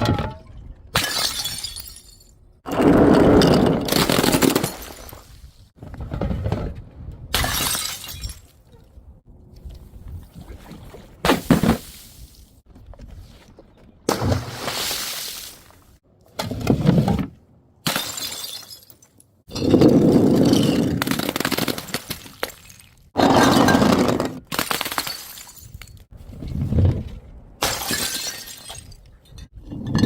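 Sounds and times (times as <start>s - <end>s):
glass bottles smashing: 1.0s - 2.3s, 17.9s - 26.0s, 27.6s - 29.0s.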